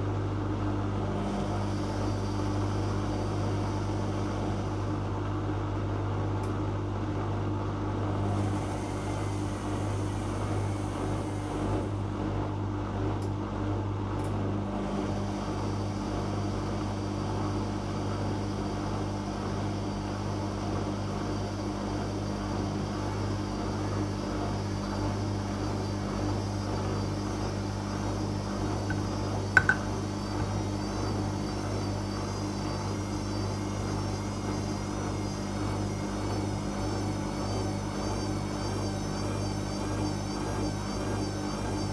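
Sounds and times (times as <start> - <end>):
washing machine humming: 0.0 - 5.7, 8.0 - 12.6, 14.4 - 41.9
sharp click: 29.6 - 29.9.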